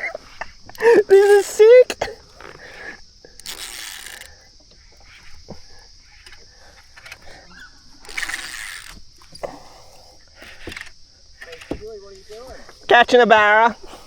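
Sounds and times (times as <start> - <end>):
steady high hiss: 0.0 - 14.0
fishing reel working: 1.1 - 1.7, 2.3 - 5.5, 6.2 - 9.4, 10.4 - 11.7.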